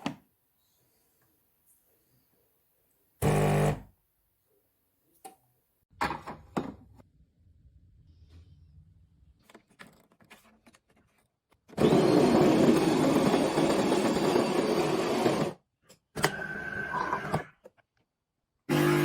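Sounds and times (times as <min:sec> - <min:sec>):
coffee machine whirring: 0:11.8 - 0:15.6, 0:18.7 - 0:19.0.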